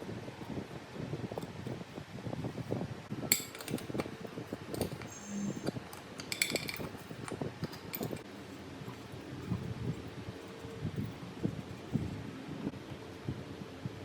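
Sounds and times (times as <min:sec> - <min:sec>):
metal tools clicking and knocking: 0:03.3 - 0:12.0
ringing metallic clinks: 0:04.7 - 0:11.9.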